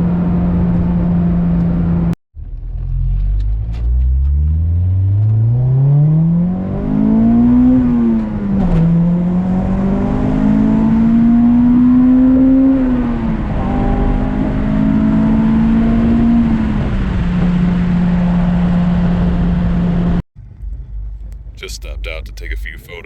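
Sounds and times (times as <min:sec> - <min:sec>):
car engine revving hard: 0:04.3 - 0:20.2.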